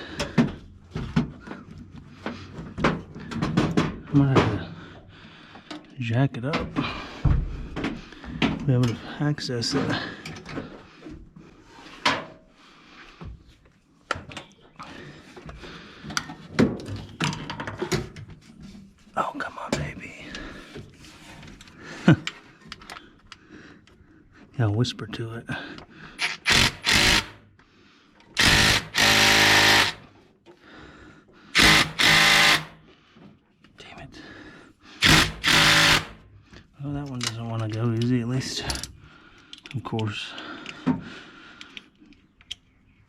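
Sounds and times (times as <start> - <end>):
impact wrench hammering bolt: 26.2 - 27.4, 28.4 - 30.1, 31.6 - 32.8, 35.0 - 36.2
sharp ratchet clicks: 26.2 - 27.5, 28.4 - 30.1, 31.6 - 32.8, 35.0 - 36.2.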